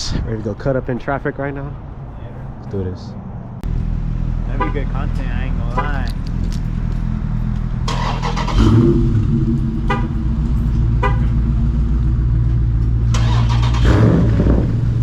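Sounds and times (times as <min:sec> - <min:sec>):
car exhaust deep drone: 0:03.6 - 0:15.0.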